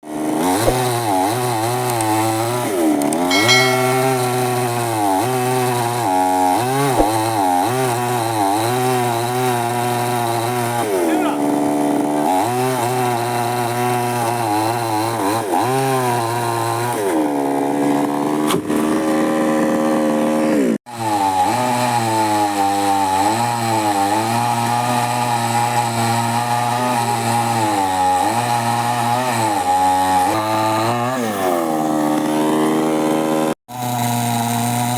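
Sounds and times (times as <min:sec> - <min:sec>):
chainsaw cutting wood: 0:07.5 - 0:34.9.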